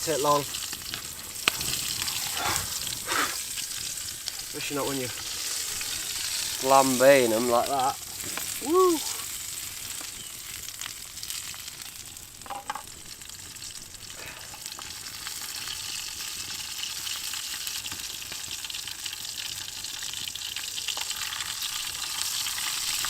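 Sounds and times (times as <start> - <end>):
mushrooms sizzling in oil: 0.0 - 23.0.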